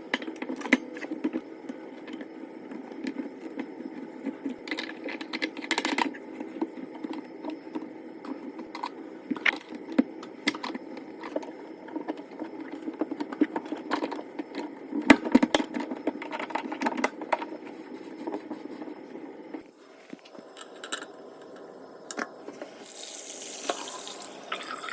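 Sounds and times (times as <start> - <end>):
steady low hum: 0.0 - 22.9
sink drain parts clicking and scraping: 2.0 - 17.5
faucet running: 22.6 - 24.9.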